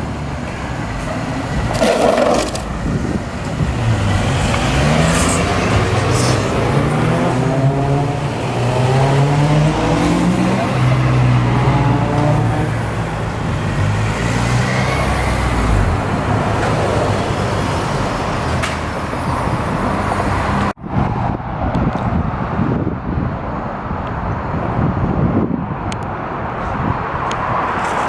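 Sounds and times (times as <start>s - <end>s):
road noise: 0.0s - 28.0s
car engine accelerating: 1.1s - 16.4s
wind on microphone: 1.5s - 13.0s, 19.2s - 27.8s.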